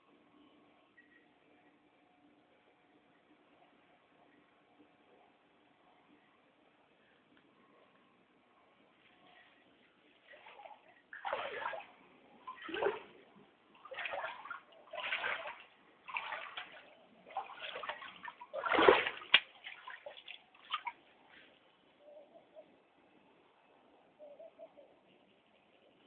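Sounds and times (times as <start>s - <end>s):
floodwater sloshing and splashing: 10.2s - 21.2s.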